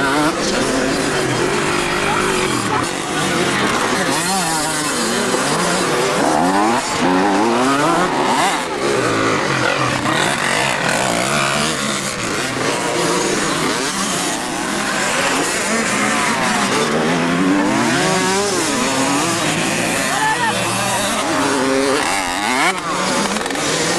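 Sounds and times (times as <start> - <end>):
motocross bike engines revving: 0.0 - 23.9.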